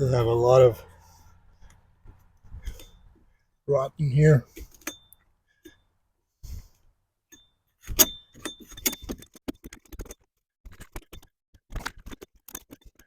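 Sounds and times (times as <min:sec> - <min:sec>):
metallic ring: 0:07.3 - 0:09.3.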